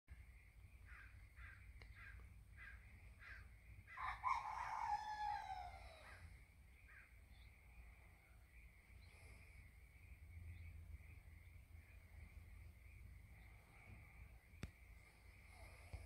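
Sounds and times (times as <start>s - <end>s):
drawn-out falling bird call: 0.8s - 7.1s.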